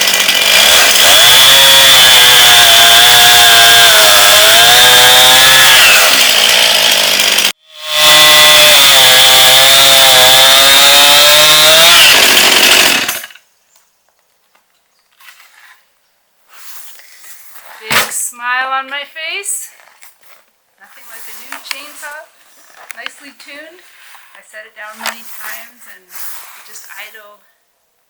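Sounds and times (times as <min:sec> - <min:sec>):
chainsaw cutting wood: 0:00.0 - 0:13.5.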